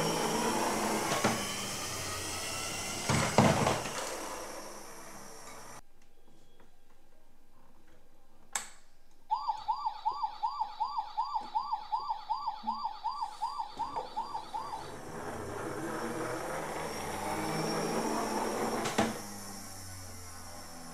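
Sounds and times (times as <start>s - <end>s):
toy siren yelping: 9.3s - 18.7s.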